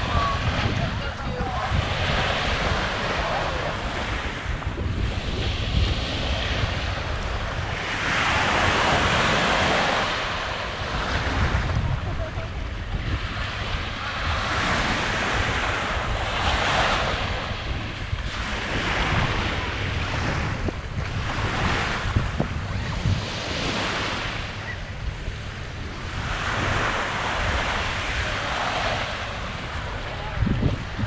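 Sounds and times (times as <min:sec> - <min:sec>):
waves breaking on beach: 0:00.0 - 0:31.0
wind buffeting microphone: 0:00.0 - 0:31.0.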